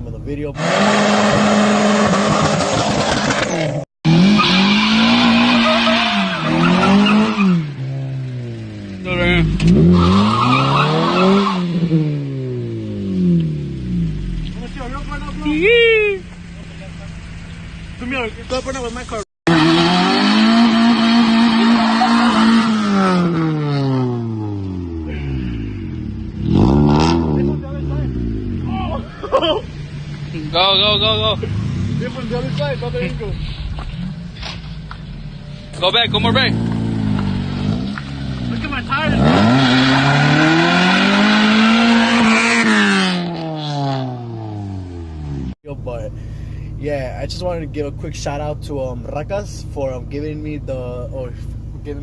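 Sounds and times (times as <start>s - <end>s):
car engine revving: 0.0s - 52.0s
tyres screeching: 0.6s - 8.0s, 9.1s - 12.0s, 19.5s - 24.1s, 26.9s - 43.4s.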